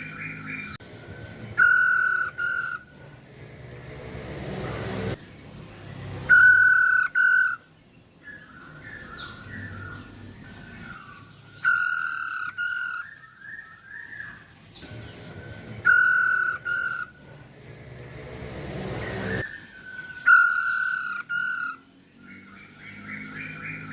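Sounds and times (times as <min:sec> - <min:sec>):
bird twittering chirps: 0:00.0 - 0:03.0, 0:05.2 - 0:17.3, 0:19.0 - 0:23.9
bird harsh calls: 0:00.0 - 0:03.1, 0:05.9 - 0:17.3, 0:18.8 - 0:23.9.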